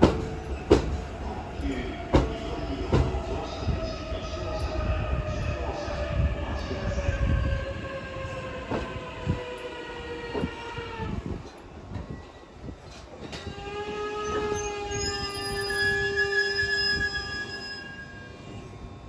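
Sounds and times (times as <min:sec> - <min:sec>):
electric train whine: 0:00.0 - 0:19.0
high squeal of brakes: 0:12.0 - 0:18.7.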